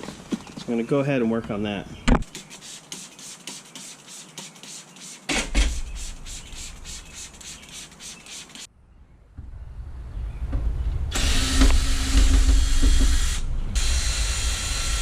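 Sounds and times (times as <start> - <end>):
fast scrubbing strokes: 2.3 - 8.7.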